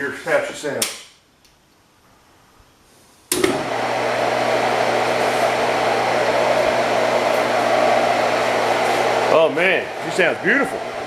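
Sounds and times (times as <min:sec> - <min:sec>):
pump motor whirring: 0:03.3 - 0:11.0.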